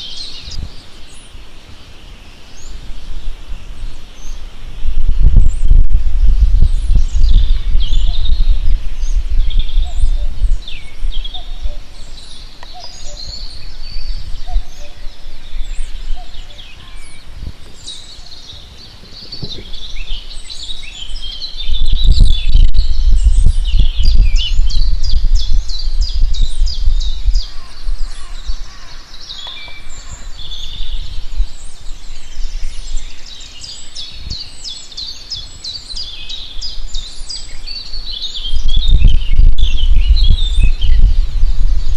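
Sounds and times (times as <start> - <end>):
songbirds singing: 0.0 - 41.9
deep rumble: 4.7 - 16.4, 21.1 - 28.8, 38.4 - 41.9.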